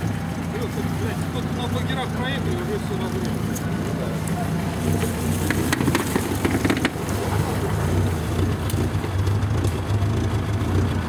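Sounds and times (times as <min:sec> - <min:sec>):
off-road vehicle engine droning: 0:00.0 - 0:11.0
knocks and clatters: 0:04.8 - 0:11.0.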